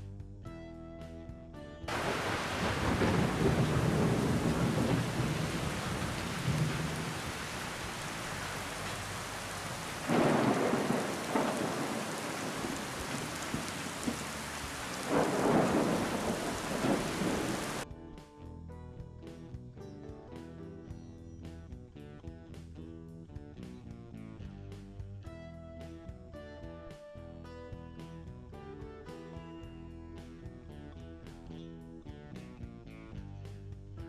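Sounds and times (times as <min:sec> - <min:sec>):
heavy rain: 0:01.9 - 0:17.8
rolling thunder: 0:01.9 - 0:17.8.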